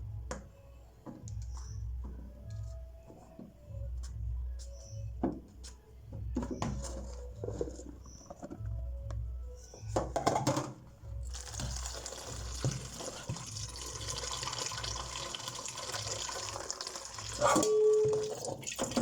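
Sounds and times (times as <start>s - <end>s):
water pouring into container: 11.3s - 19.0s.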